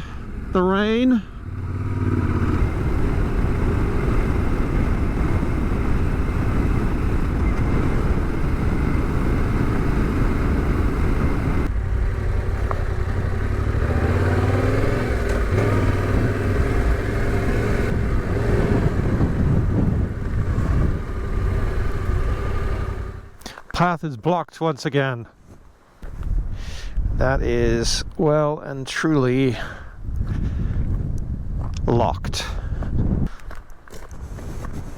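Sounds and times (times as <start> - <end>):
motorcycle engine revving: 0.0 - 23.4.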